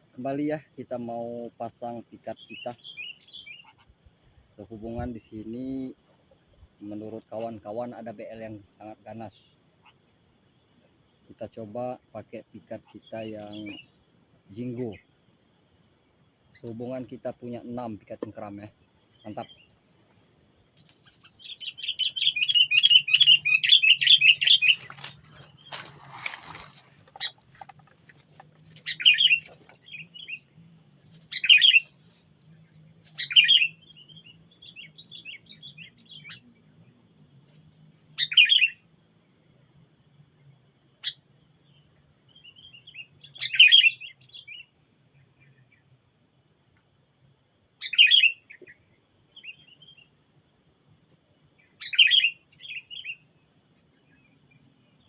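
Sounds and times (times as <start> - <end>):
bulbul chattering calls: 2.3 - 4.0, 12.8 - 13.9, 21.0 - 30.5, 31.2 - 32.2, 33.0 - 36.6, 38.2 - 38.8, 42.4 - 44.7, 47.8 - 48.8, 51.7 - 53.2
brief rustle: 24.7 - 29.8.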